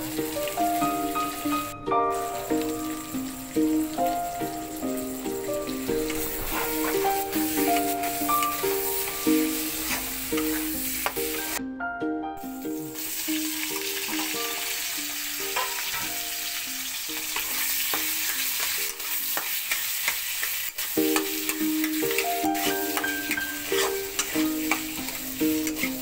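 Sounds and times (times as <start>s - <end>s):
vegetables sizzling in oil: 0.0s - 11.6s, 12.4s - 26.0s
metal spatula scraping a pan: 5.9s - 11.6s, 15.4s - 16.2s, 17.2s - 26.0s.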